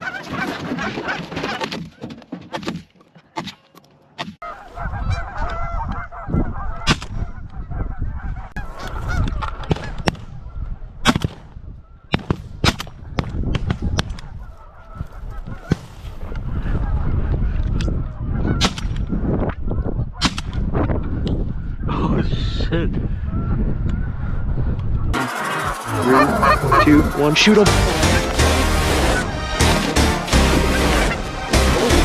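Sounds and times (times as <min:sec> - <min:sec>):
geese honking: 0:25.2 - 0:32.0.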